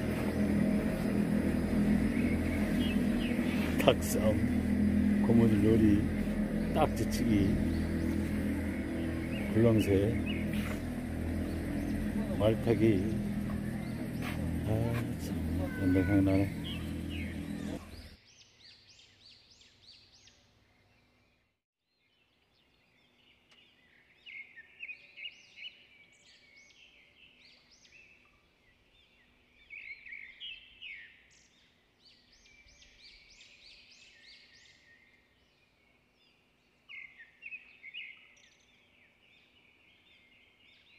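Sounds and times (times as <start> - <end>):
birds chirping: 0.0 - 21.4.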